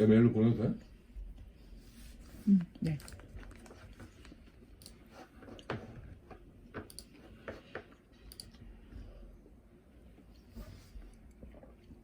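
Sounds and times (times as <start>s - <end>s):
keyboard typing clicks: 6.8s - 7.1s, 8.2s - 8.6s.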